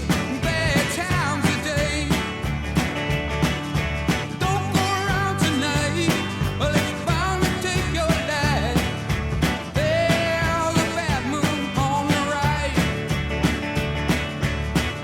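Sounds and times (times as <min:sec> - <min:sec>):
pop music with singing: 0:00.0 - 0:02.4, 0:04.3 - 0:13.3.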